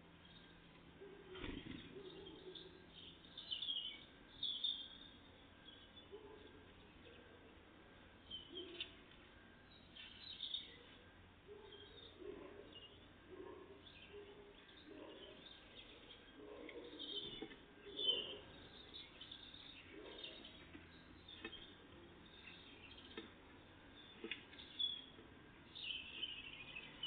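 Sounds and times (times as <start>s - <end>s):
songbirds chirping: 0.0s - 27.0s.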